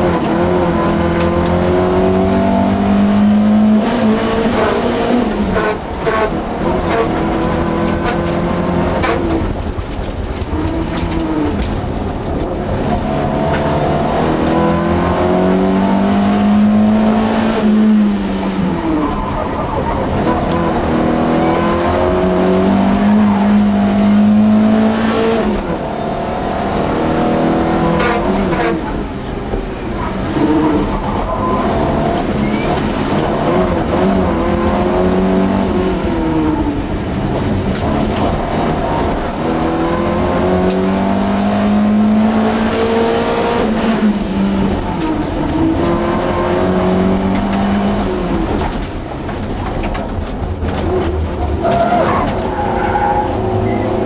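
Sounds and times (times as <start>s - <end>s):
car engine accelerating: 0.0s - 54.0s
road noise: 0.0s - 54.0s.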